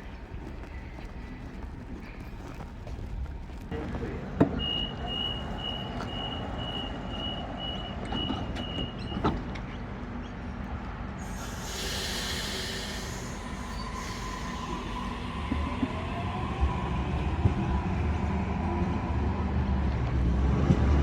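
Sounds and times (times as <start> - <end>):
hiss of air: 11.2 - 15.5
train motor whine: 11.2 - 18.2.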